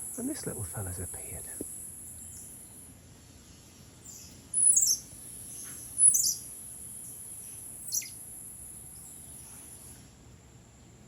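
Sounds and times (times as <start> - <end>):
bird chirping: 0.0 - 10.1
high insect buzz: 4.6 - 10.1.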